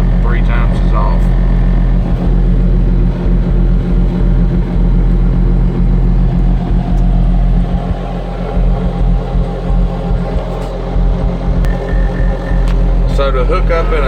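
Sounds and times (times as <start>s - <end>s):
diesel engine humming: 0.0s - 14.0s.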